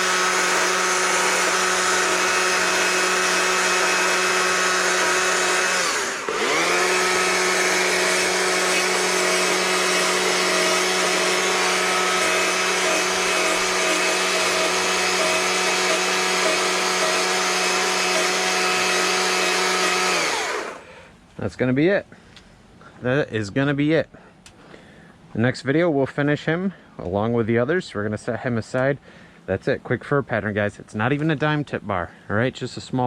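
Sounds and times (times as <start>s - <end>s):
power carving tool cutting wood: 0.0s - 20.8s.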